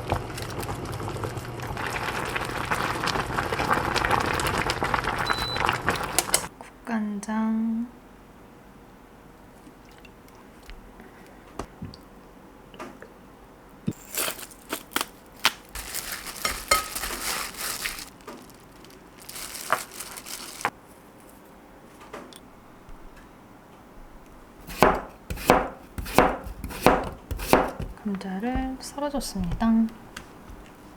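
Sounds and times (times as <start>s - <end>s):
crinkly rustling: 14.0s - 21.5s
knife chopping on cutting board: 24.6s - 28.0s.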